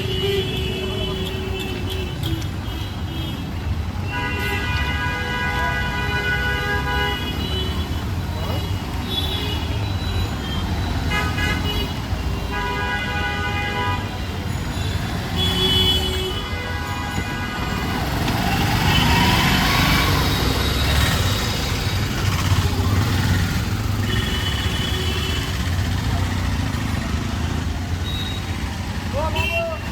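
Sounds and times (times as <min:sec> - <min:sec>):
vehicle horns honking: 0:00.0 - 0:21.1, 0:22.3 - 0:26.1, 0:27.1 - 0:29.9
rumble of engines: 0:00.0 - 0:29.9
passing vehicle rush: 0:17.6 - 0:29.9.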